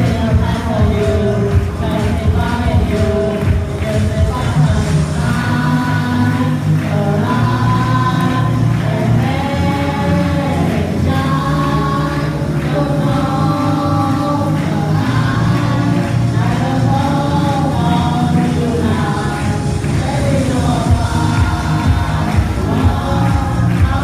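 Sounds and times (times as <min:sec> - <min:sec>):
choir singing held notes: 0:00.0 - 0:24.0
musical accompaniment: 0:00.0 - 0:24.0.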